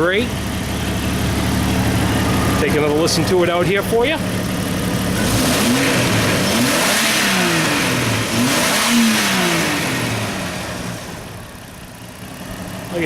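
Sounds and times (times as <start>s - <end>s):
engine revving from idle: 0.0s - 13.0s.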